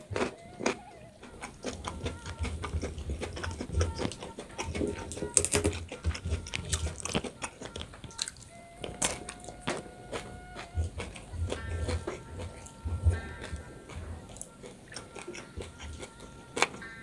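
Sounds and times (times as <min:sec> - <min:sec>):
man chewing with crunchy clicks: 0:00.0 - 0:17.0.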